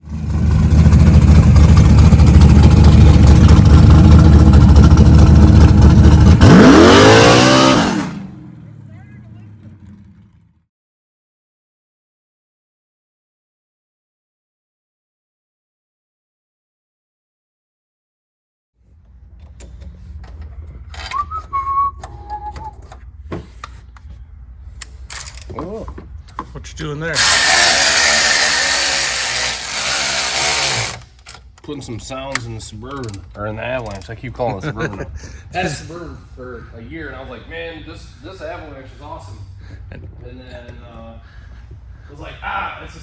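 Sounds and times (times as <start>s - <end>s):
car engine running and revving: 0.0s - 10.6s
person whistling: 21.1s - 23.0s.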